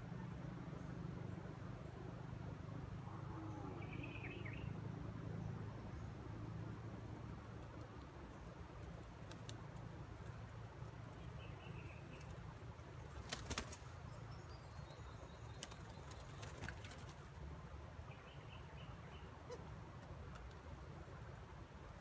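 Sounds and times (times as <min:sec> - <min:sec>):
steady low hum: 0:00.0 - 0:22.0
faint twittering chirps: 0:03.0 - 0:06.4, 0:10.3 - 0:17.4, 0:18.0 - 0:19.7
wings flapping: 0:08.0 - 0:10.4, 0:12.1 - 0:14.0, 0:15.4 - 0:17.4.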